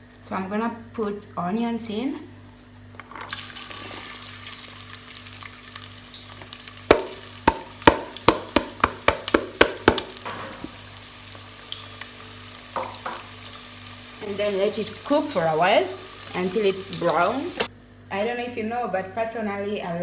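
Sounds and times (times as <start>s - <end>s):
onions sizzling in oil: 3.3s - 17.7s
sharp knocks: 6.9s - 10.7s.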